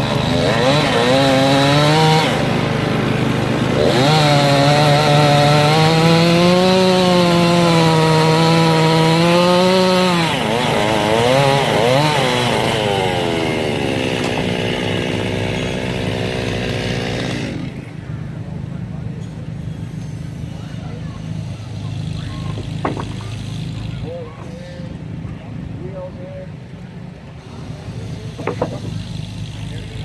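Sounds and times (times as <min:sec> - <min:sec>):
circular saw blade cutting log: 0:00.0 - 0:17.9, 0:21.7 - 0:24.5, 0:27.8 - 0:30.0.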